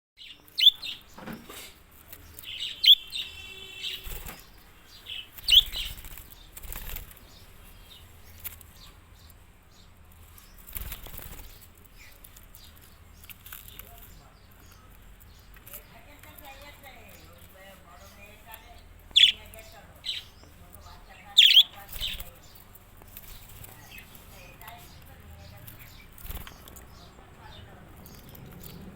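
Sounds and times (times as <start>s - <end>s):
sharp high bird chirps: 0.2s - 1.2s, 2.4s - 6.5s, 19.1s - 19.5s, 21.4s - 22.2s
birds flapping wings: 3.6s - 7.6s, 10.6s - 11.9s, 21.7s - 24.9s, 25.6s - 27.0s.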